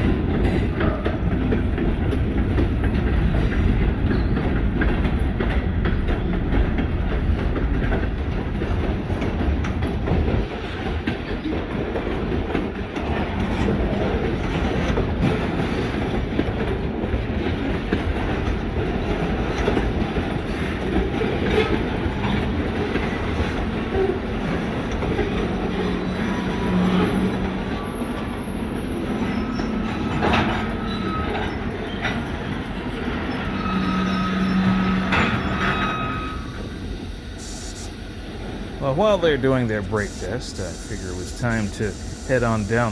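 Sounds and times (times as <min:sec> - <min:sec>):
freight train rumbling: 0:00.0 - 0:42.9
thin squeal: 0:33.5 - 0:36.6.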